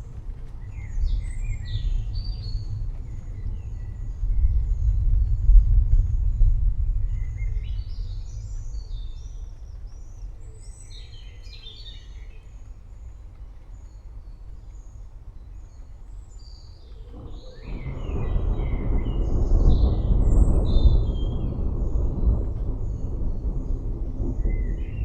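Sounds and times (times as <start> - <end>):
thunder rumbling: 0.0 - 11.0, 16.8 - 25.0
songbirds chirping: 0.0 - 25.0.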